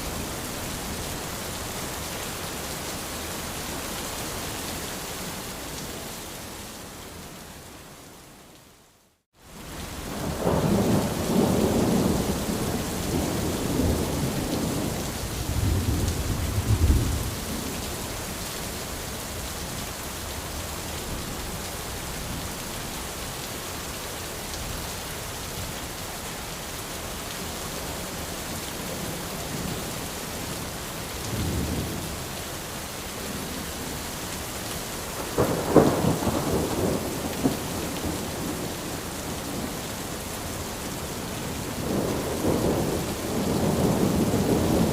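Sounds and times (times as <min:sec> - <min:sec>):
rain pattering on an umbrella: 0:09.3 - 0:25.0, 0:25.6 - 0:44.9
thunder rumbling: 0:35.2 - 0:39.7, 0:41.8 - 0:44.9.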